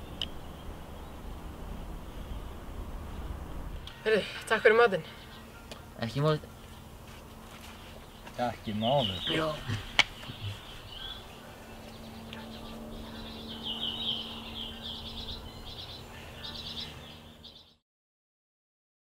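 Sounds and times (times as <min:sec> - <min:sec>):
faint low hum: 0:00.0 - 0:17.8
small birds chirping: 0:00.0 - 0:17.8.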